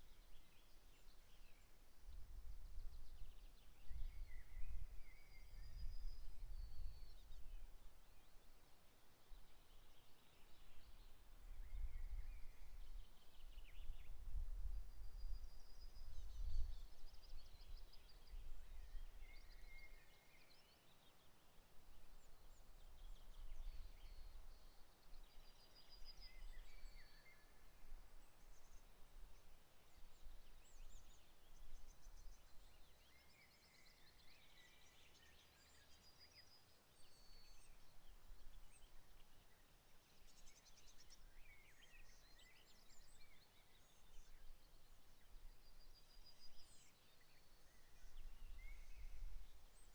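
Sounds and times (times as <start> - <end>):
songbirds trilling and chirping: 0.0 - 49.9.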